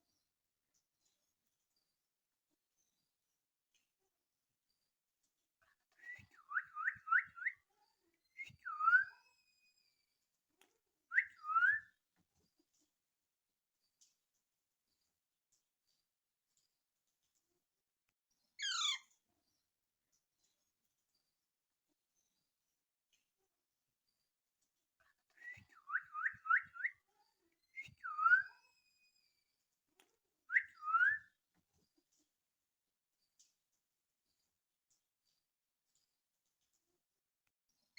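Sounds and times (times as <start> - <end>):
parakeet whistled calls: 18.6 - 19.0, 28.0 - 28.5.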